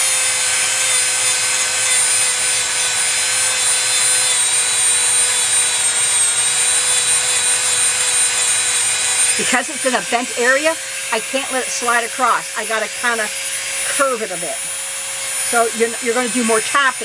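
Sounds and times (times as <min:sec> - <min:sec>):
rotary tool grinding paint: 0:00.0 - 0:17.0.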